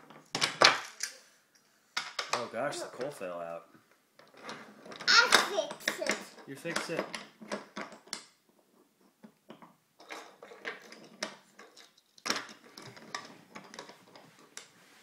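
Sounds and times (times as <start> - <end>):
toy train pieces clattering: 4.2 - 8.2, 10.0 - 14.7.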